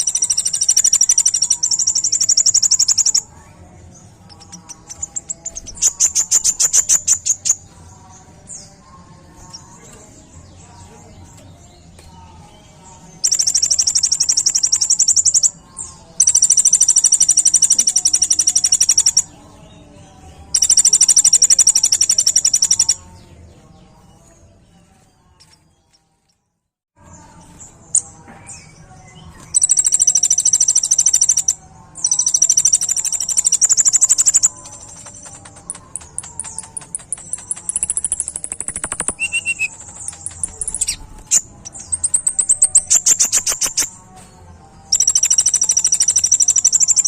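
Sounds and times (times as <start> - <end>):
bird ticking notes: 0.0 - 3.2, 13.2 - 15.5, 16.2 - 19.3, 20.5 - 23.0, 29.6 - 43.9, 44.9 - 47.0
bird singing rapid trills: 0.0 - 23.2, 27.1 - 44.1, 44.8 - 47.0.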